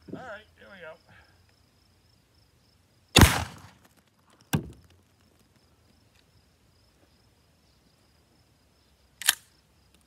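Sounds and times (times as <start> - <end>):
shotgun shot: 3.2 - 3.8.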